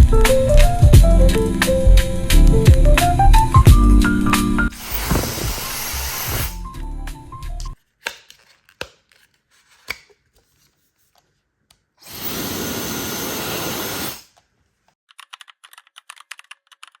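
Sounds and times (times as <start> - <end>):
hair dryer blowing: 4.7 - 6.6, 12.0 - 14.3.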